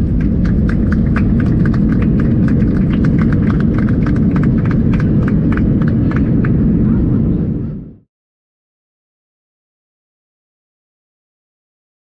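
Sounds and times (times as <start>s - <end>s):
aircraft wheels rumbling on runway: 0.0s - 8.0s.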